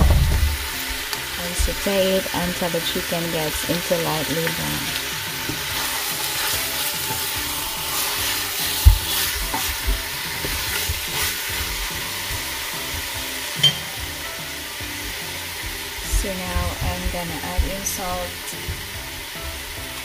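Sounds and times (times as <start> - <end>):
chicken sizzling in a pot: 0.0 - 20.0
wooden spoon scraping a pot: 5.6 - 12.2.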